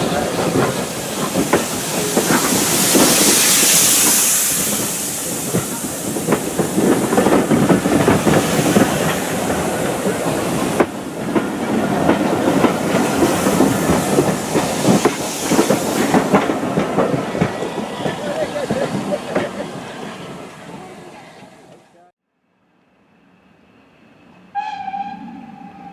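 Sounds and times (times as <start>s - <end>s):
train wheels clattering: 0.0s - 20.6s
steam hissing: 0.0s - 21.8s.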